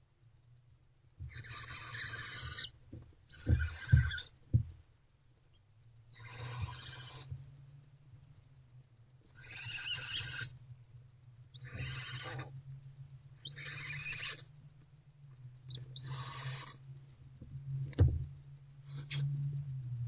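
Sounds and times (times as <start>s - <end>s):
steady low hum: 0.0s - 20.0s
owlets hissing screeches: 1.2s - 4.4s, 6.1s - 7.3s, 9.3s - 10.6s, 11.6s - 12.6s, 13.4s - 14.5s, 16.0s - 16.9s, 18.7s - 19.3s
knock: 17.9s - 18.2s.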